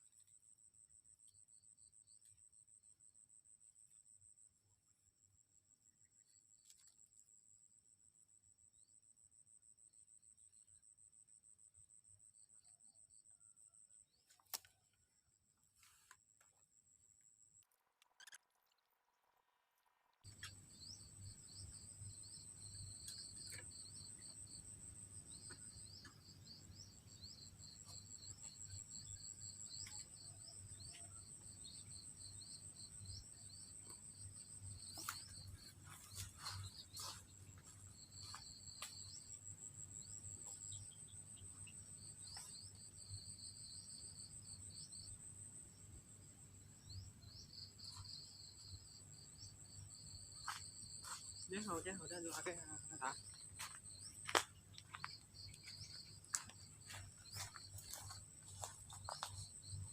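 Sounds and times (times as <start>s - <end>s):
lower pulsing insect chirp: 0.0s - 18.4s, 20.3s - 59.9s
insects trilling: 20.3s - 59.9s.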